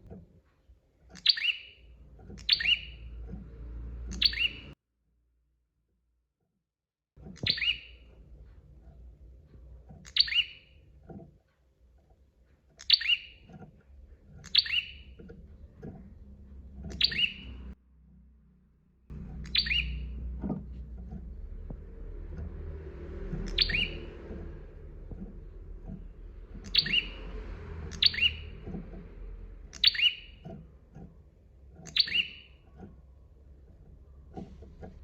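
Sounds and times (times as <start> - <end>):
bird chirping call: 1.2 - 3.4, 4.0 - 4.8, 7.4 - 8.1, 10.0 - 10.8, 12.8 - 13.5, 14.4 - 15.7, 16.8 - 17.8, 19.1 - 20.9, 23.2 - 29.0, 29.6 - 30.6, 31.8 - 32.8
faint low rumble: 13.1 - 35.0.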